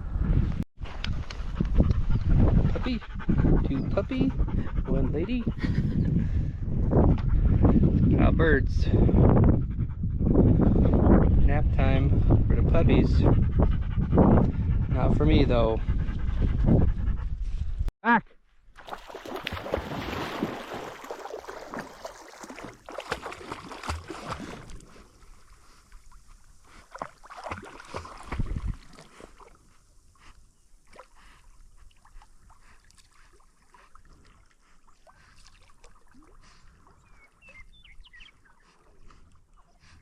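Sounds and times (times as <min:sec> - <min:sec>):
dog splashing through water: 0:18.8 - 0:29.7.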